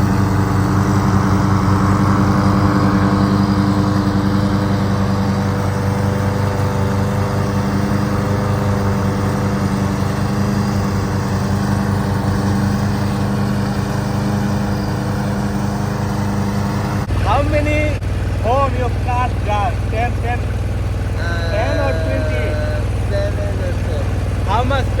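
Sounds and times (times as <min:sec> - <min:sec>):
lawn mower engine running: 0:00.0 - 0:25.0.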